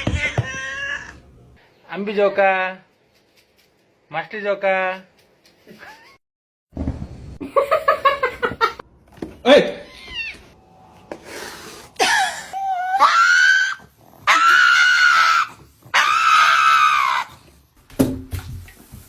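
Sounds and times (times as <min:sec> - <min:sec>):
loud high-pitched screams: 0:12.2 - 0:17.3.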